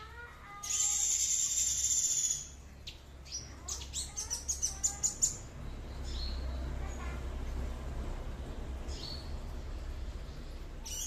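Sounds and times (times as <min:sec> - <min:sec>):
songbird high chirps: 0:00.6 - 0:07.1, 0:08.8 - 0:11.0.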